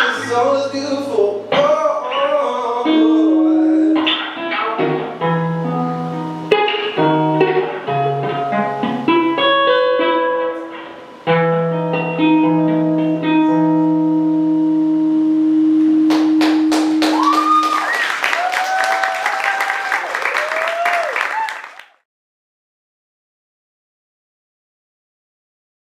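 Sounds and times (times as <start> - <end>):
acoustic guitar: 0.0 - 17.7
audience clapping: 16.1 - 22.0
cheers and whoops: 17.0 - 21.9.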